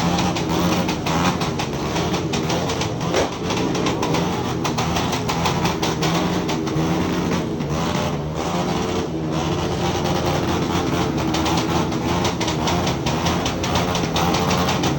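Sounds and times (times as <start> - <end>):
motorcycle engine running: 0.0 - 14.9
rapid irregular crackle of clicks: 10.2 - 14.9.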